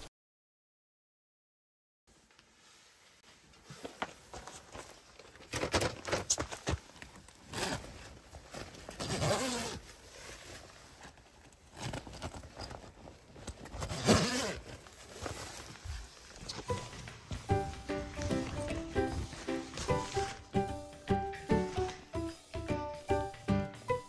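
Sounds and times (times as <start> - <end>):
knocks and rustles: 3.5 - 9.2.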